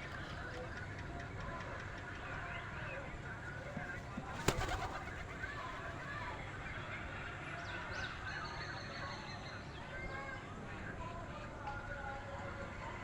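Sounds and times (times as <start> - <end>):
birds chirping: 0.0 - 6.5.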